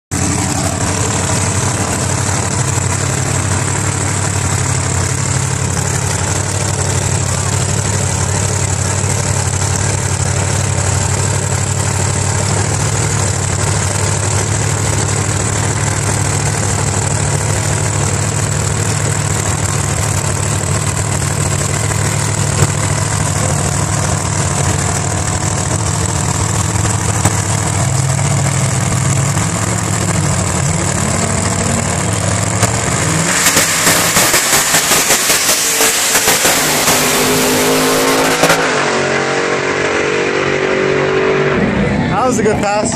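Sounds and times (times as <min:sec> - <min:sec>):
car engine idling: 0:00.1 - 0:42.9
engine pulsing at full throttle: 0:00.1 - 0:42.9.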